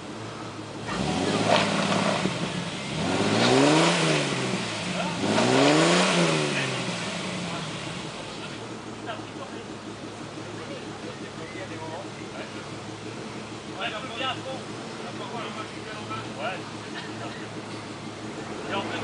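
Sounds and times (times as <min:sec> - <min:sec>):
engine revving hard: 0:00.8 - 0:08.6.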